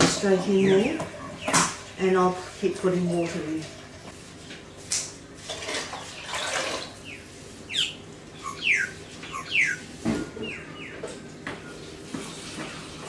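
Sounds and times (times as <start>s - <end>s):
bird chirping: 6.0s - 11.8s.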